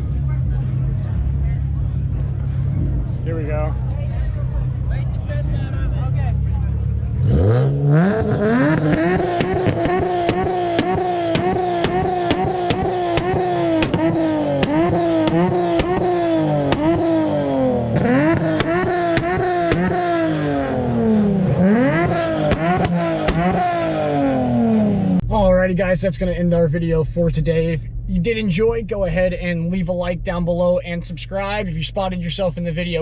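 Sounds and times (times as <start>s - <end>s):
car engine revving in blips: 6.8s - 25.2s
exhaust pops and crackles: 8.1s - 20.4s, 21.7s - 23.9s.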